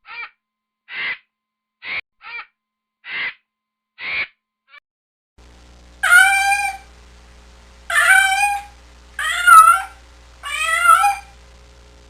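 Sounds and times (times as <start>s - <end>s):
faint low hum: 5.4s - 12.0s
animal calling: 6.0s - 6.9s, 7.9s - 11.4s.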